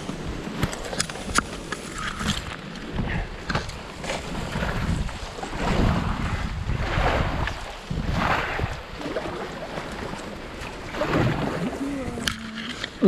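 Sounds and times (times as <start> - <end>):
water splashing and rushing: 0.0 - 13.0
wind buffeting microphone: 2.2 - 12.6.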